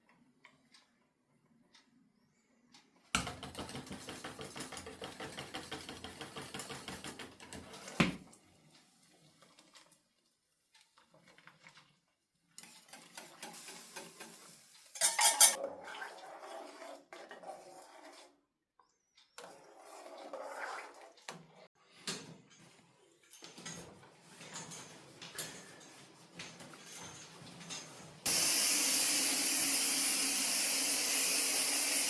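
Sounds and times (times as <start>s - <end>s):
dishes and cutlery clinking: 15.0s - 15.6s.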